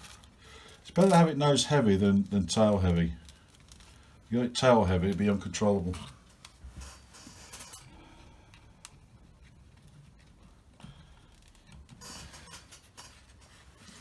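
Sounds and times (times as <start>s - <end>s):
hands handling foam model: 0.0s - 14.0s.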